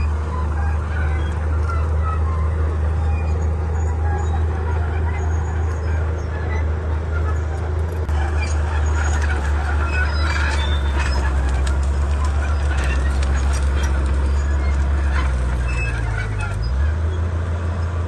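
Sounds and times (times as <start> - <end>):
bulldozer diesel engine running: 0.0 - 18.0
sharp clicks and cracks: 7.8 - 16.6.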